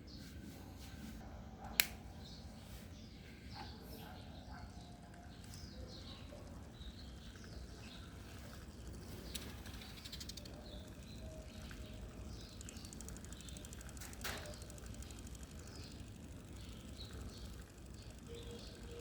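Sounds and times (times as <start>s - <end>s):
small birds chirping: 0.0s - 19.0s
sharp click: 1.7s - 2.0s.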